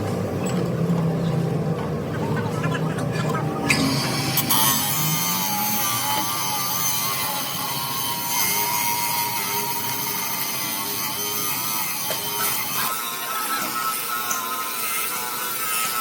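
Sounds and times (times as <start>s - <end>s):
power tool whine: 3.6s - 16.0s.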